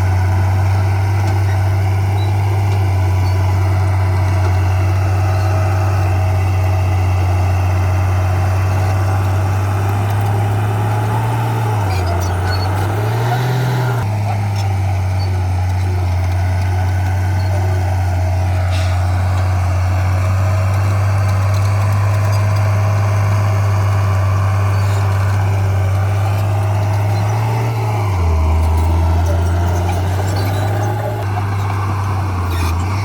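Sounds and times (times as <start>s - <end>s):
heavy diesel engine droning: 0.0s - 33.0s.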